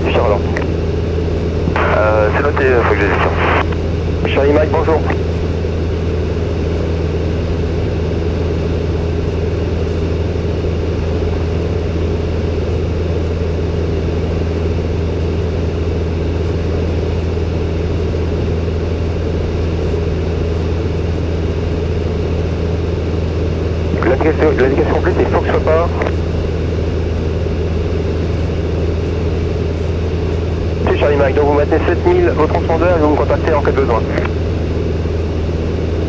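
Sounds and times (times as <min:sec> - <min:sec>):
propeller aircraft engine droning: 0:00.0 - 0:36.0.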